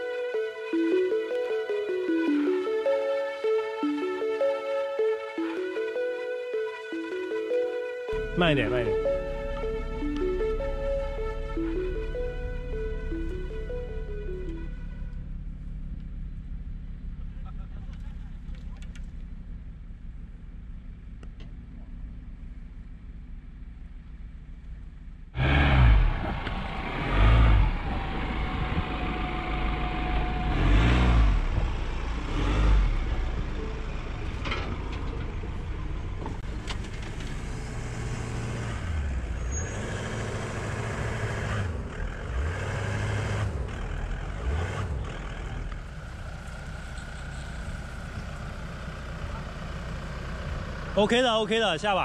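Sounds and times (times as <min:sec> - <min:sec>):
off-road vehicle engine revving: 0:25.3 - 0:51.2.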